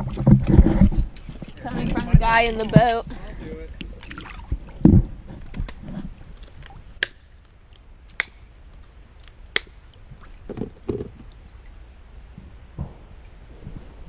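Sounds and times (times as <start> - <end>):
dull low knocks: 0.0 - 6.2, 12.3 - 14.0.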